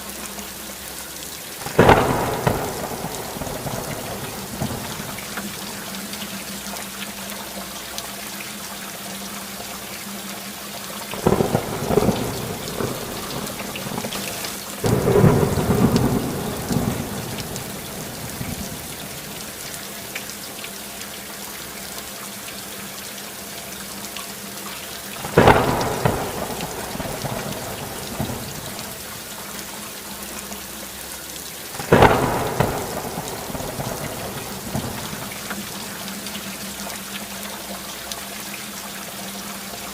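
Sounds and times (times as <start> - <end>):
heavy rainfall: 0.0 - 39.9
thunder cracks: 1.6 - 5.7, 11.1 - 19.7, 25.2 - 29.2, 31.8 - 36.0.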